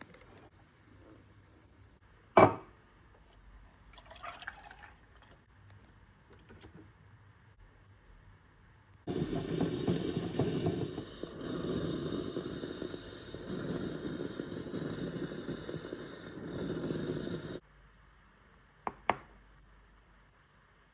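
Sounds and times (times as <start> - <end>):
espresso machine rattling: 9.1 - 17.6.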